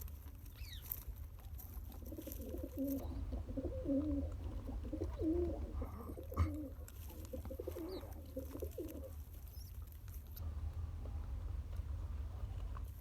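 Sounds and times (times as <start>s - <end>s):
pigeon cooing: 1.8s - 9.7s
steady low rumble: 3.0s - 9.3s, 10.3s - 13.0s.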